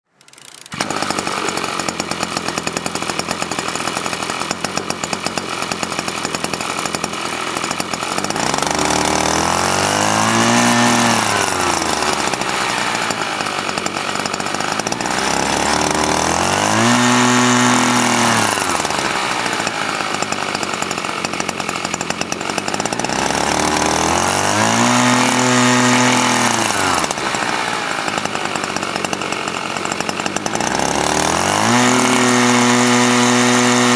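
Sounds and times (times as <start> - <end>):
small gasoline engine revving: 0.1 - 33.9.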